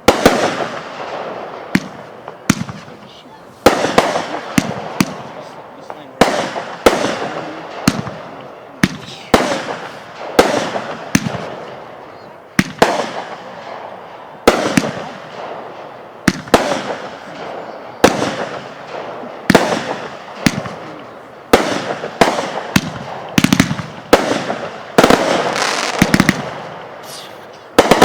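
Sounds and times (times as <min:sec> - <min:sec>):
fireworks bangs with crackle: 0:00.0 - 0:28.0
rattling fireworks reports: 0:00.0 - 0:28.0.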